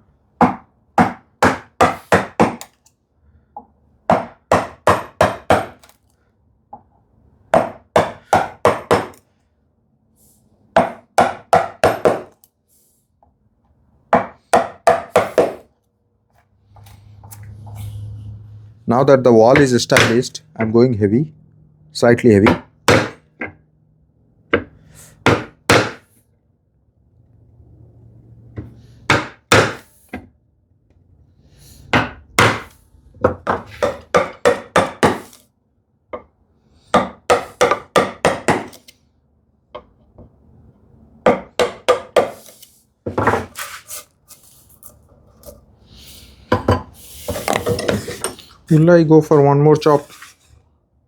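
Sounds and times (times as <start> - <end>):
chisel struck into wood: 0.4 - 2.8, 4.1 - 5.9, 7.5 - 9.2, 10.8 - 12.4, 14.1 - 15.7, 19.6 - 20.3, 22.4 - 23.6, 24.5 - 26.0, 29.1 - 29.8, 31.9 - 35.4, 36.9 - 38.9, 41.3 - 42.4.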